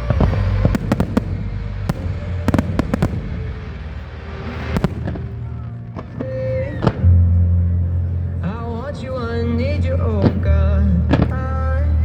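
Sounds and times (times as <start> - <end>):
fireworks bangs and cracks: 0.0 - 6.4
low rumble: 0.0 - 8.3.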